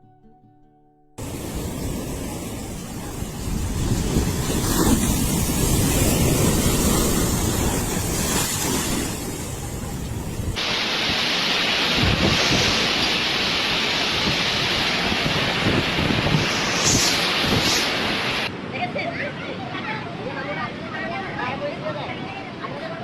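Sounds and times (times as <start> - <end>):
wind buffeting microphone: 1.2 - 11.2, 11.8 - 18.6
storm rushing noise: 1.2 - 18.8.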